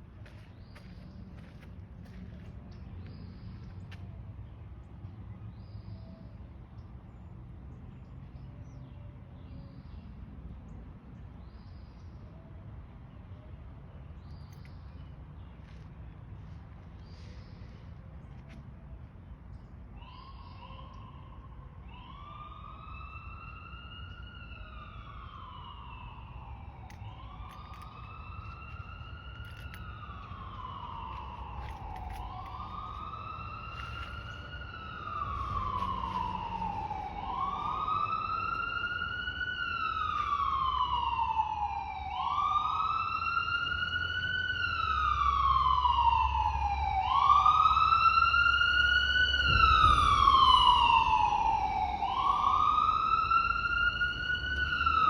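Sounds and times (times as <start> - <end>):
emergency siren wailing: 19.8 - 55.0.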